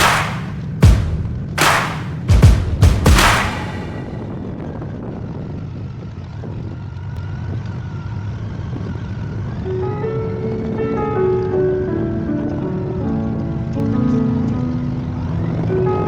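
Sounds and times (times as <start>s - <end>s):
music: 0.0s - 4.4s, 9.6s - 16.0s.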